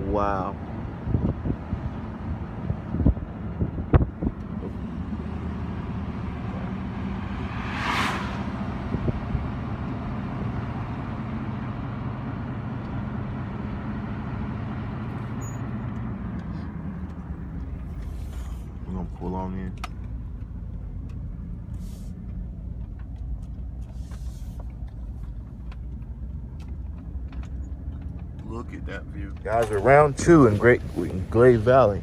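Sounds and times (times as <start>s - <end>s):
vehicle engine and road noise: 0.0s - 32.0s
brief rushing hiss: 7.0s - 9.6s.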